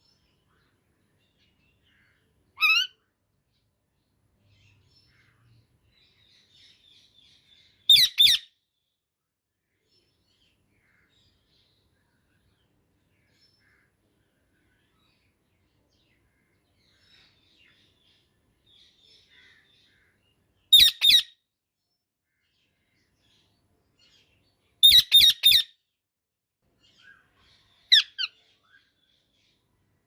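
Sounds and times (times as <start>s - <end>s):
parakeet loud high calls: 2.6s - 3.0s, 7.9s - 8.5s, 20.7s - 21.3s, 24.8s - 25.7s, 27.9s - 28.4s.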